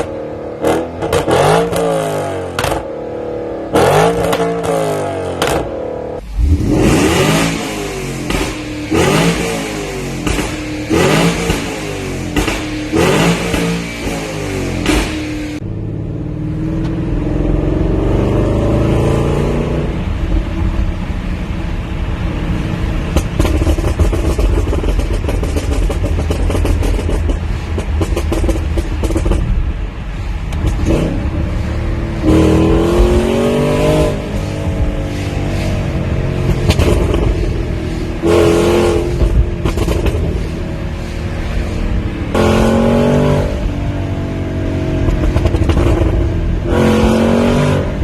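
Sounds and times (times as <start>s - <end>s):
car engine revving: 0.0s - 20.2s, 22.1s - 48.0s.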